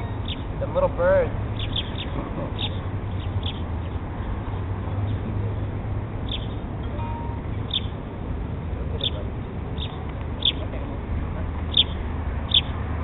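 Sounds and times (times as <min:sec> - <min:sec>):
small birds chirping: 0:00.0 - 0:05.3, 0:06.2 - 0:06.7, 0:07.4 - 0:08.0, 0:08.9 - 0:10.9, 0:11.6 - 0:12.8.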